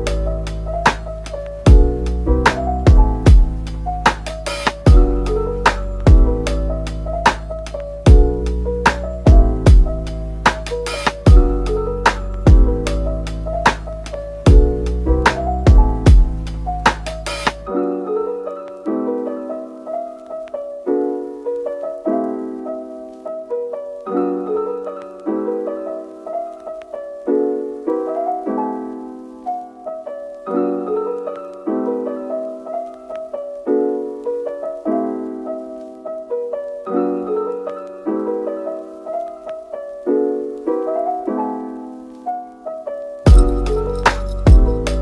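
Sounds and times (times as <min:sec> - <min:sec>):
gentle piano music: 0:00.0 - 0:45.0.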